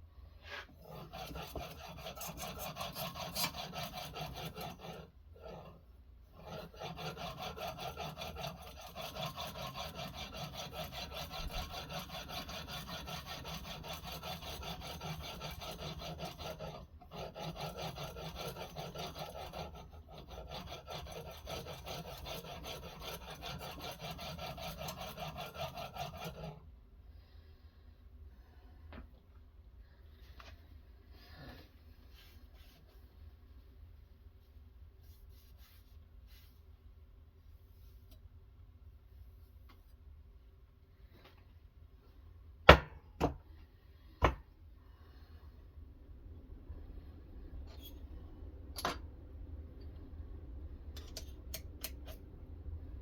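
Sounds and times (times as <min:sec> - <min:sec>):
stone scraping knife blade: 0:00.5 - 0:05.8, 0:06.4 - 0:26.6.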